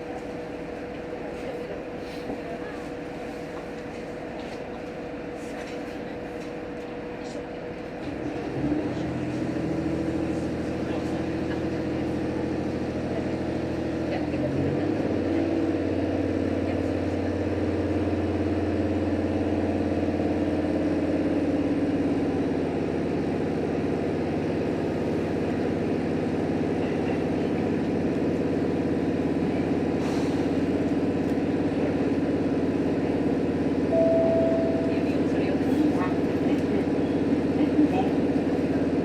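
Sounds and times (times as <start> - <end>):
diesel railcar engine running: 0.0 - 39.0
low hum: 33.9 - 35.5
steady higher tone: 33.9 - 35.7.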